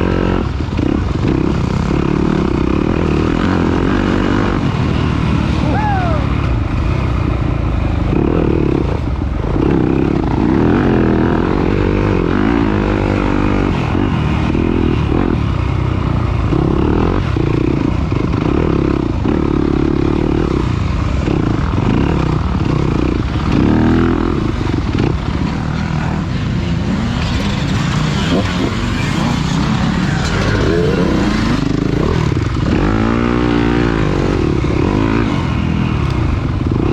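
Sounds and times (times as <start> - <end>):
dirt bike engine revving: 0.0 - 36.9.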